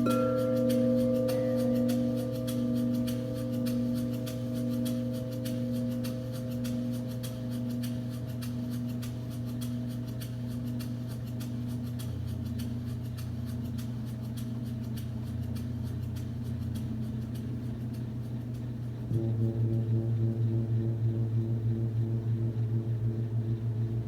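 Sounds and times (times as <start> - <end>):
pulsing wavering tone: 0.0 - 11.8
singing bowls humming drone: 0.0 - 18.4, 19.0 - 24.0.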